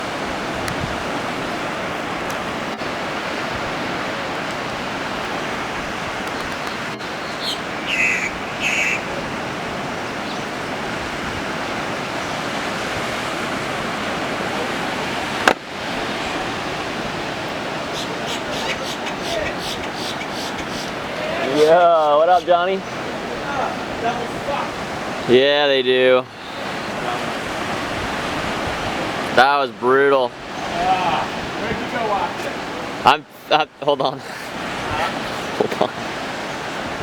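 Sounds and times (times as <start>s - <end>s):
ocean surf washing onto beach: 0.0s - 37.0s
short high-pitched calls: 17.9s - 20.9s.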